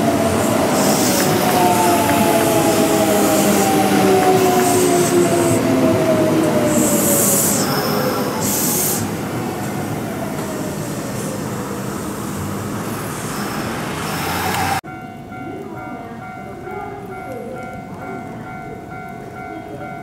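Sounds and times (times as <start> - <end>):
electric train motor whine: 0.0 - 14.8
wheel and rail rumble: 0.0 - 20.0.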